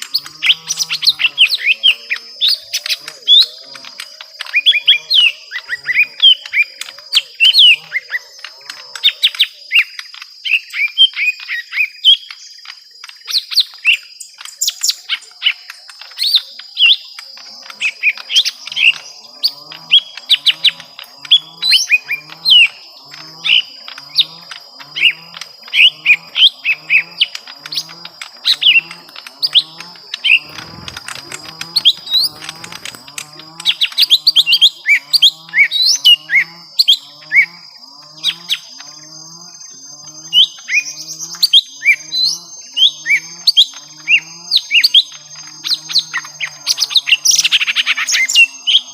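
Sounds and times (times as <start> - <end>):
birds chirping sharply: 0.0 - 12.6, 13.3 - 48.9
low-pitched call: 25.8 - 33.4.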